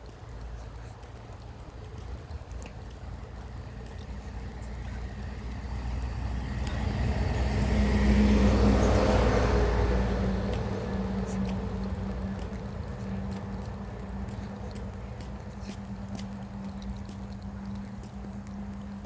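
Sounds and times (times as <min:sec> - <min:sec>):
vehicle driving past: 0:05.2 - 0:14.2.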